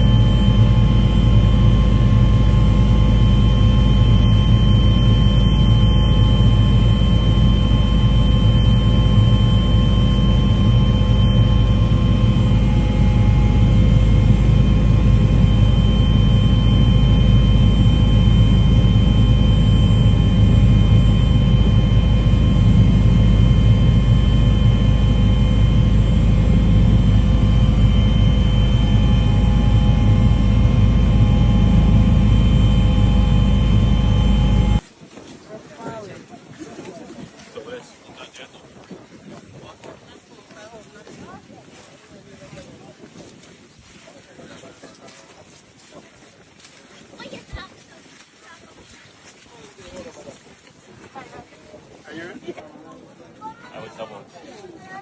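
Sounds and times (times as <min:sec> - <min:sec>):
engine drone with whining tones: 0:00.0 - 0:35.0.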